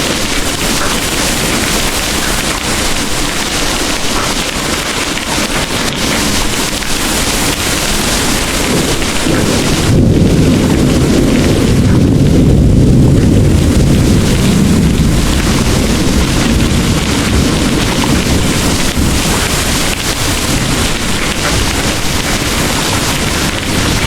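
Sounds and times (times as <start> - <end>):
deep rolling thunder: 0.0 - 24.0
heavy rain pouring: 0.0 - 24.0.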